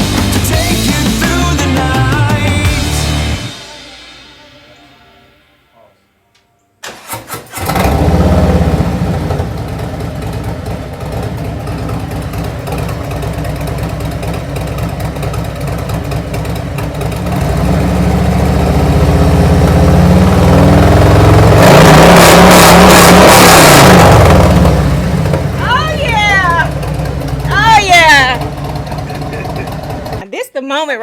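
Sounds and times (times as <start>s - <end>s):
motorcycle engine revving: 6.8s - 30.2s
motorcycle engine starting: 6.8s - 30.2s
motorcycle engine idling: 7.8s - 21.5s, 24.4s - 30.2s.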